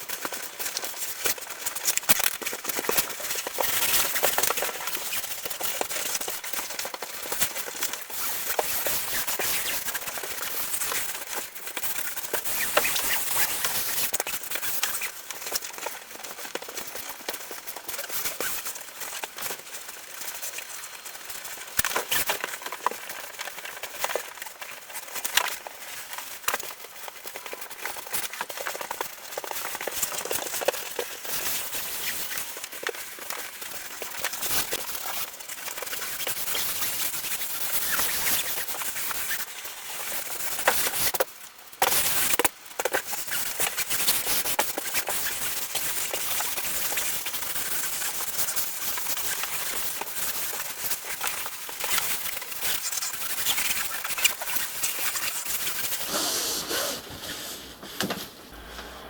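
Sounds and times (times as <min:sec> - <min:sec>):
scraping and rustling: 0:42.9 - 0:59.0.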